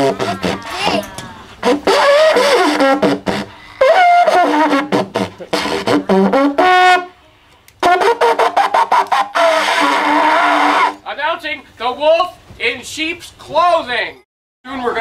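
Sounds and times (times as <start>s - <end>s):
horn-like wind instrument fanfare: 1.6s - 7.2s, 7.8s - 11.0s.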